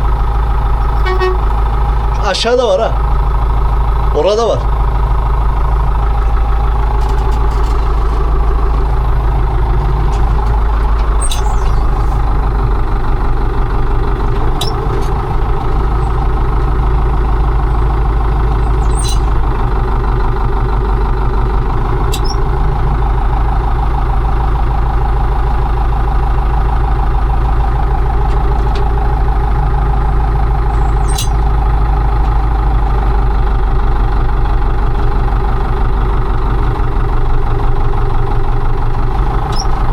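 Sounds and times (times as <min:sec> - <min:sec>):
combine harvester engine running: 0:00.0 - 0:39.9
short high squeaks: 0:11.2 - 0:12.2, 0:18.7 - 0:19.4, 0:30.8 - 0:31.4, 0:39.5 - 0:39.8.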